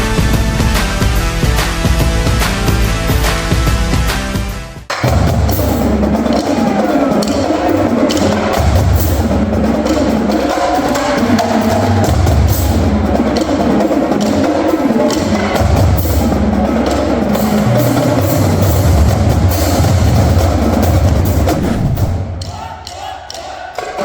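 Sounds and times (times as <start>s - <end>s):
low bass notes: 0.0s - 6.3s, 15.6s - 22.5s
drum stick and rim hits: 4.9s - 24.0s.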